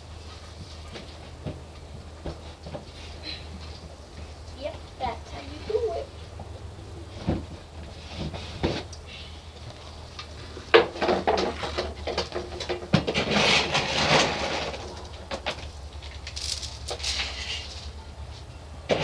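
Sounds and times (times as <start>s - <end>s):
dog bowl clattering and rattling: 10.9s - 15.7s.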